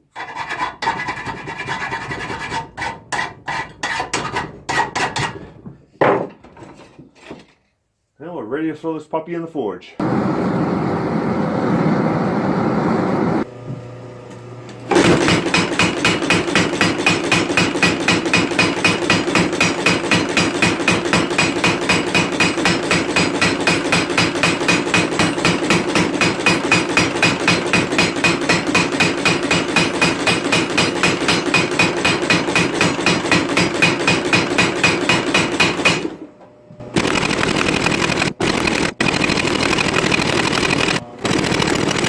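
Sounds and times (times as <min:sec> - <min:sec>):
power hammer striking hot metal: 0:14.9 - 0:36.2.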